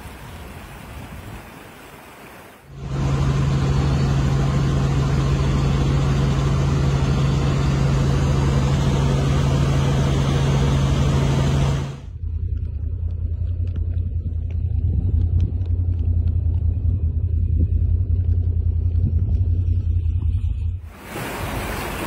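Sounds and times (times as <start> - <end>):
loud engine hum and hiss: 2.1 - 12.1, 20.9 - 22.0
deep rumble: 2.7 - 21.8.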